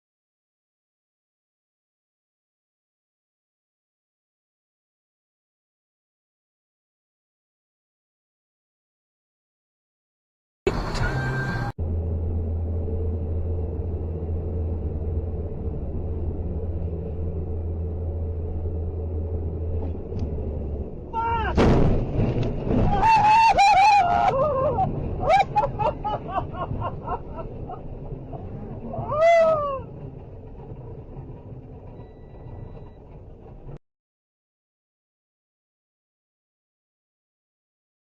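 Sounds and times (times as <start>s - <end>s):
vehicle drone: 10.7s - 33.8s
loud crash: 21.5s - 25.8s
wailing cries: 22.8s - 30.0s.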